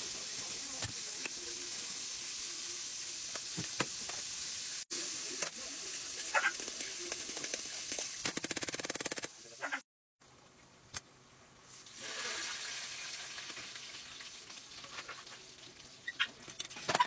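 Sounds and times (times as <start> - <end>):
pork chops sizzling in oil: 0.0 - 9.6, 11.6 - 17.0
fast run of ticks: 8.3 - 9.3.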